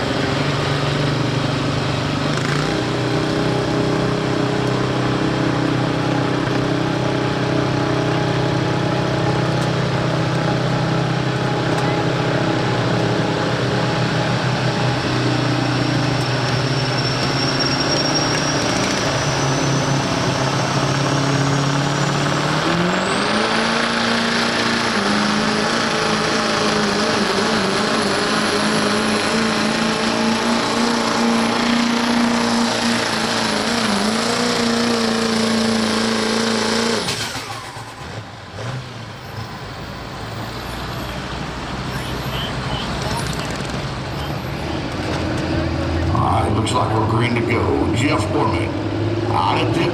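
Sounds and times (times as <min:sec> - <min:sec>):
diesel engine under full load: 0:00.0 - 0:49.9
turbo whistling: 0:14.6 - 0:21.9, 0:39.0 - 0:46.2.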